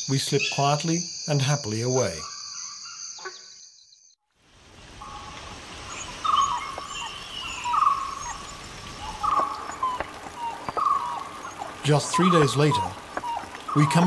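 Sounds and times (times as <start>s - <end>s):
high cricket trill: 0.0s - 3.9s.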